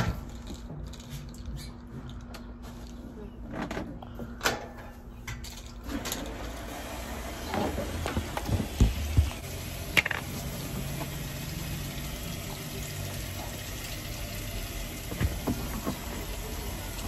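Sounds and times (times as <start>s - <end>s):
knocks on washing machine: 7.8s - 9.4s.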